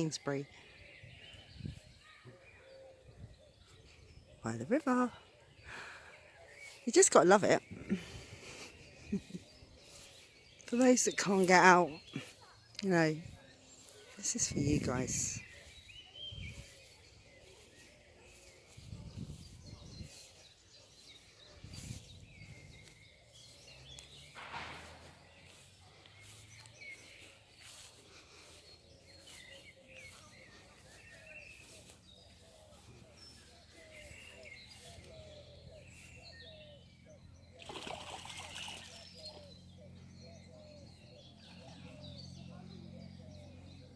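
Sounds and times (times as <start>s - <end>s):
faint bird chirps: 0.0s - 4.6s.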